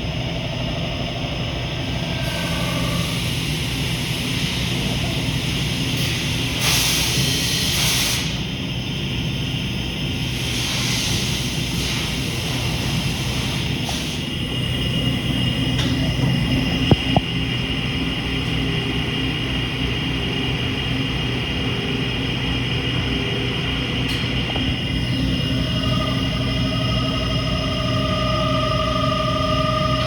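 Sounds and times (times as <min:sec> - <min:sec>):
milling machine humming and whining: 0:00.0 - 0:30.0
hiss: 0:02.2 - 0:08.5, 0:10.2 - 0:14.3.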